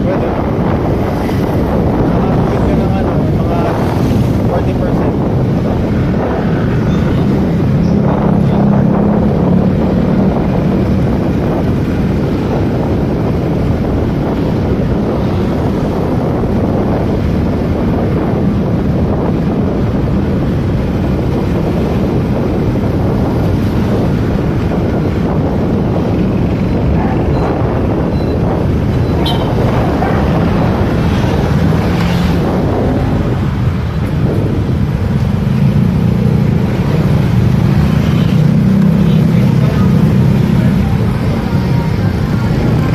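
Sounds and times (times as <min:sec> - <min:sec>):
wind noise on microphone: 0:00.0 - 0:42.9.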